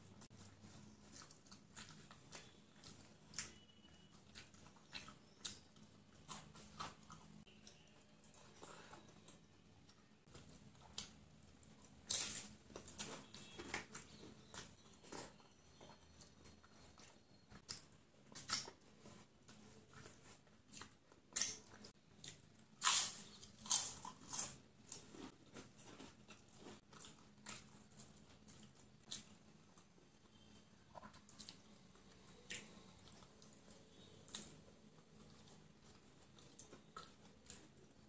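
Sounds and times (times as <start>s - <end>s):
crunchy bites: 20.8s - 29.3s.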